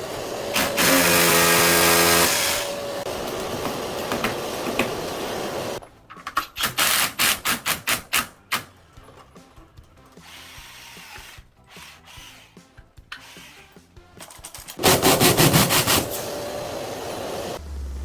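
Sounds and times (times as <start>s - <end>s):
power tool running: 0.0s - 5.8s, 14.8s - 17.6s.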